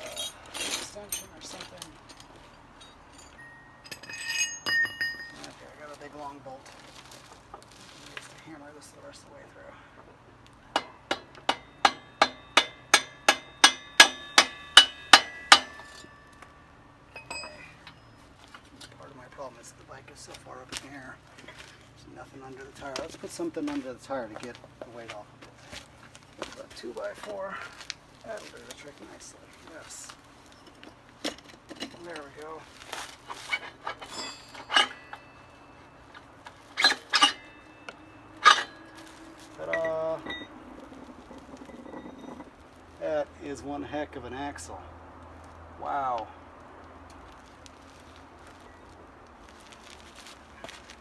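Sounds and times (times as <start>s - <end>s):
metal axle clinking and scraping: 0.0s - 51.0s
hammer striking steel bolt: 10.8s - 16.1s.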